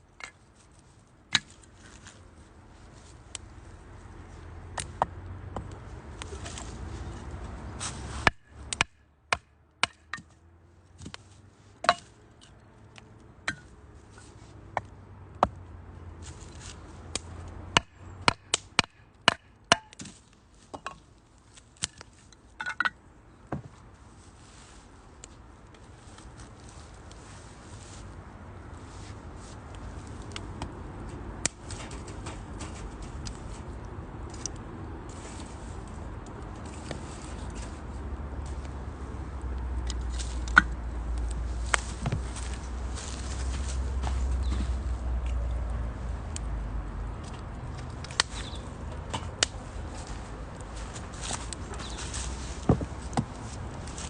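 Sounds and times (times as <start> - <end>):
wood crackling and snapping: 14.7 - 23.8, 29.5 - 37.7, 38.4 - 54.0
firewood burning in a stove: 38.4 - 43.1.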